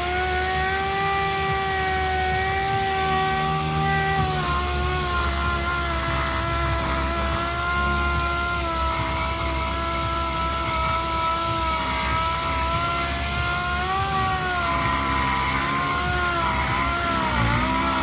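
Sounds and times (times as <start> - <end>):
motor whining steadily: 0.0 - 18.0.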